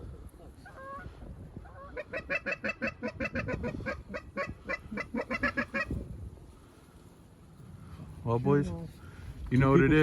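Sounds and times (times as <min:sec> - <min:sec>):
geese honking: 0:01.7 - 0:06.0.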